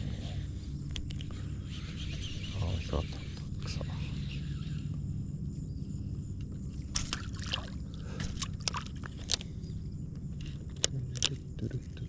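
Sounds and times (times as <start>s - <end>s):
low rumble: 0.0s - 12.0s
water sloshing and trickling: 6.6s - 12.0s
splashes: 6.9s - 9.1s.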